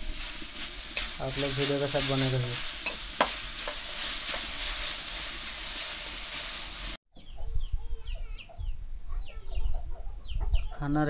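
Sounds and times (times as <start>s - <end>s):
greens sizzling in a pan: 0.0s - 7.0s
spatula stirring: 0.0s - 7.0s.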